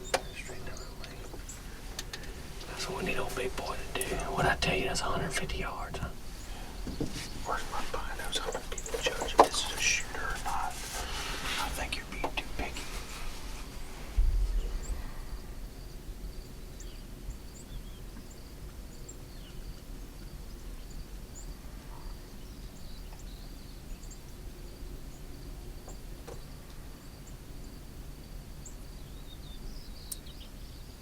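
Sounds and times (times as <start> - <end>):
bird chirps: 0.0 - 4.4, 5.5 - 10.8, 28.6 - 30.9
faint high hum: 0.0 - 30.7
low thump: 14.1 - 14.9.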